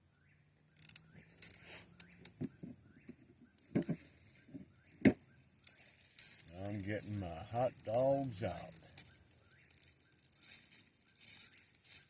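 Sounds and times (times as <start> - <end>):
bird chirping: 0.0 - 12.0
rustling: 3.6 - 12.0
objects knocking and clunking: 3.7 - 5.2.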